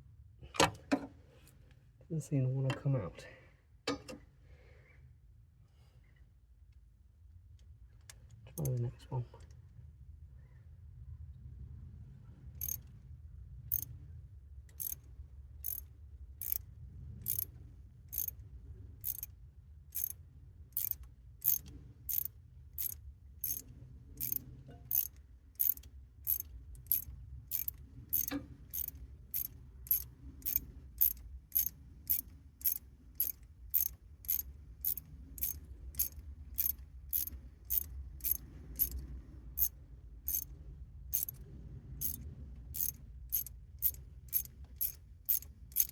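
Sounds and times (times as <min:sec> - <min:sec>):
socket ratchet clicking: 0:14.8 - 0:15.0, 0:15.6 - 0:15.8, 0:17.2 - 0:17.5, 0:18.1 - 0:18.4, 0:19.0 - 0:19.3, 0:20.0 - 0:20.2, 0:20.8 - 0:23.6, 0:24.2 - 0:39.0, 0:40.3 - 0:40.5, 0:41.2 - 0:41.4, 0:42.0 - 0:42.2, 0:42.8 - 0:45.9.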